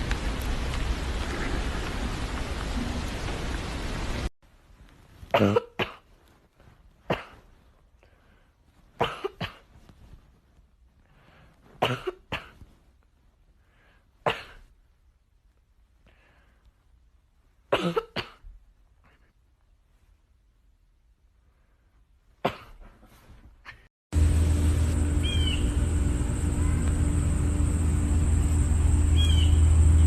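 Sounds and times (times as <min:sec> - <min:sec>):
person coughing: 0:05.3 - 0:06.1, 0:07.1 - 0:07.4, 0:09.0 - 0:09.7, 0:11.8 - 0:12.6, 0:17.8 - 0:19.3, 0:22.4 - 0:23.9.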